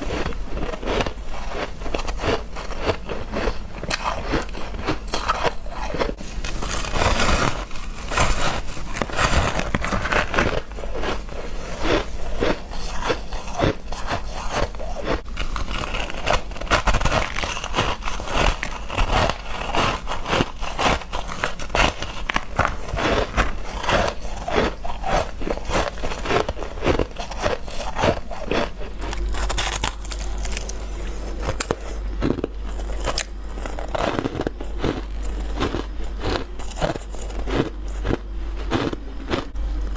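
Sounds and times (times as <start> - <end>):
frost being crunched: 14.3 - 38.0.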